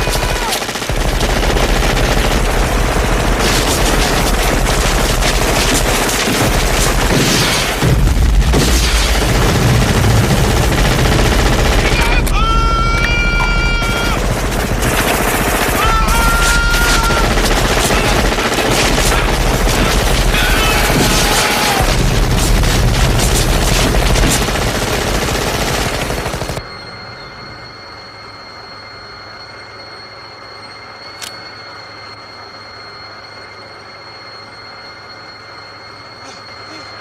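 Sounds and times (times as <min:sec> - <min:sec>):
heavy automatic gunfire: 0:00.0 - 0:26.6
thin high tone: 0:26.6 - 0:37.0.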